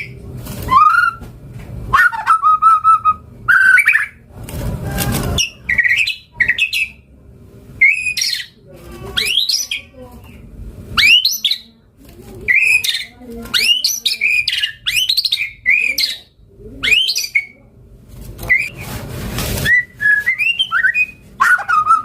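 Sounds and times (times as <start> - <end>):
bird singing whistled phrases: 7.8 - 8.6, 12.5 - 17.6, 19.6 - 22.0.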